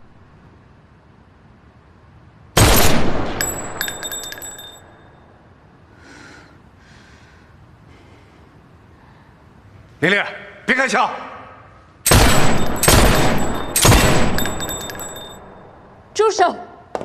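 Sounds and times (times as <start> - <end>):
high tinkling of falling shards: 3.4 - 5.0, 12.1 - 15.8.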